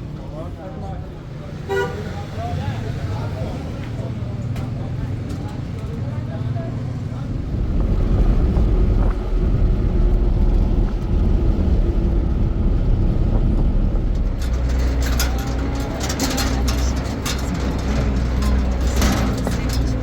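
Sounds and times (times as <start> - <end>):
motor vehicle rumbling: 0.0 - 20.0
rattling and clicking: 9.0 - 20.0.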